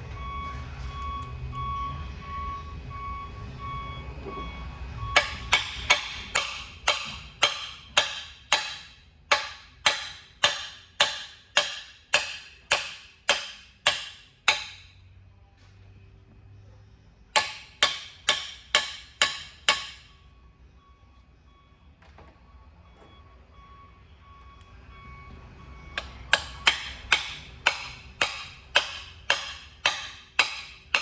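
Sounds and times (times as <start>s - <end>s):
electronic alarm beeping: 0.0s - 6.9s, 20.0s - 27.1s
shop noise: 0.0s - 31.0s
hammer striking metal: 5.1s - 15.0s, 17.3s - 20.2s, 26.0s - 31.0s.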